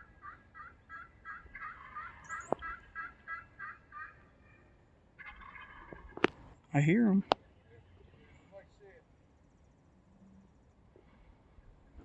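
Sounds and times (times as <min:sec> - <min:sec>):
turkey yelps: 0:00.0 - 0:06.3.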